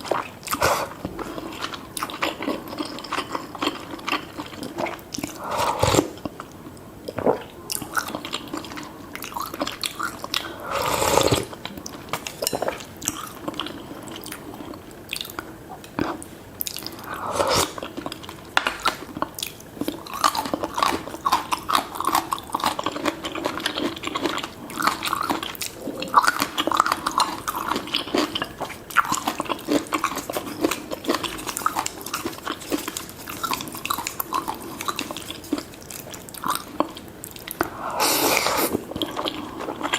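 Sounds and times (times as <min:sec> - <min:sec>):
loud wet slurping sounds: 0:10.7 - 0:11.5, 0:37.8 - 0:38.8
chewing and biting: 0:11.1 - 0:37.7.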